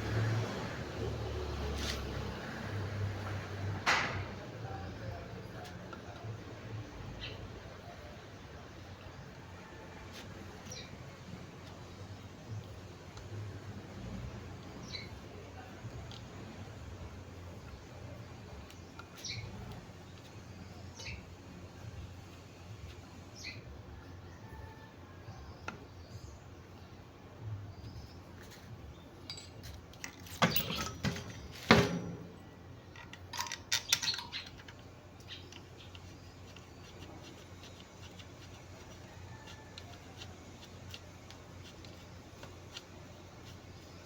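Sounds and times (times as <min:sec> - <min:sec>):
metal tools clinking and knocking: 0:29.2 - 0:32.3, 0:32.9 - 0:34.9.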